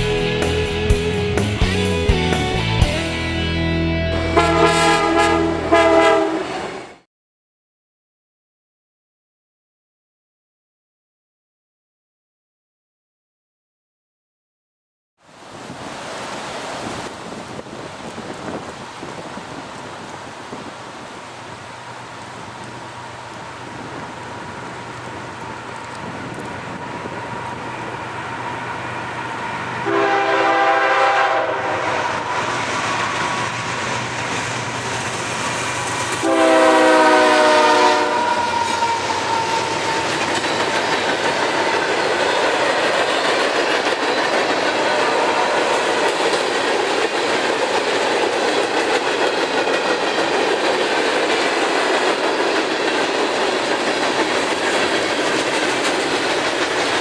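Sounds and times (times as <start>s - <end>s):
train engines and wheels rumbling: 0.0s - 7.0s, 15.2s - 57.0s
train horn blasts: 4.1s - 6.9s, 29.8s - 32.4s, 36.2s - 40.1s, 44.7s - 46.1s
wheels clacking on rail joints: 38.5s - 57.0s.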